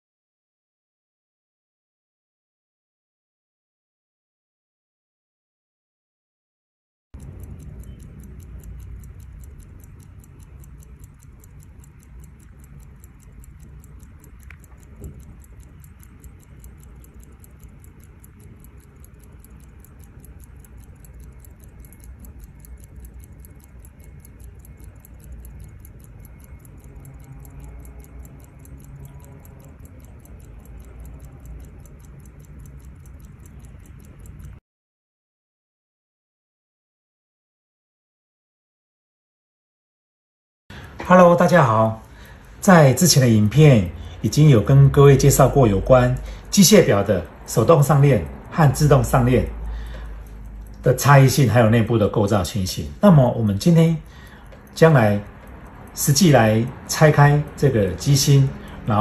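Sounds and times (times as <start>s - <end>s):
low steady hum: 7.2s - 34.6s, 40.7s - 59.0s
wristwatch ticking: 7.2s - 34.6s, 40.7s - 59.0s.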